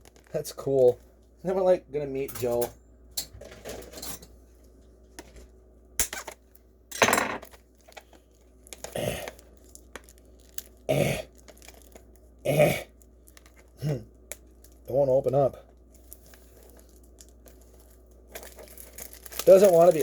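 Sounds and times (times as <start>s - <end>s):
burp-like vocal sounds: 10.9s - 11.3s, 12.5s - 12.9s.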